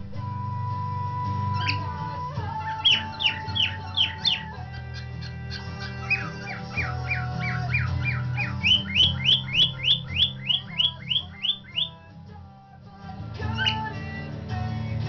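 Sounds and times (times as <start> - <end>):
music: 0.0 - 15.0
cockatiel chirping: 1.5 - 12.0, 13.4 - 14.0.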